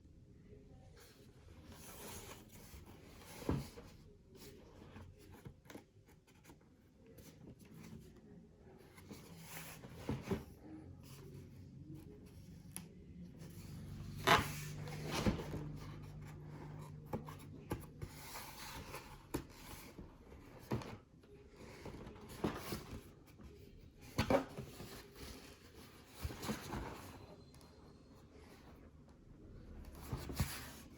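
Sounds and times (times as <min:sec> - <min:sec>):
cardboard box rustling: 0:14.4 - 0:27.2, 0:29.9 - 0:30.9.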